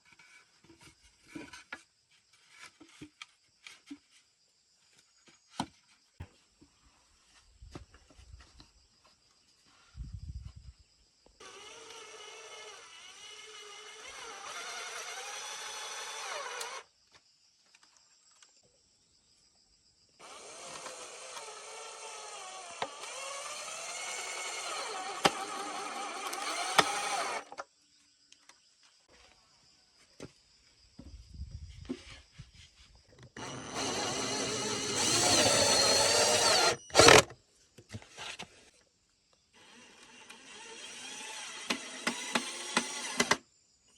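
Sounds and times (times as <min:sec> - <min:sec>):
cordless drill whining: 0:11.4 - 0:16.8, 0:20.2 - 0:27.6, 0:33.4 - 0:37.3, 0:39.6 - 0:43.4.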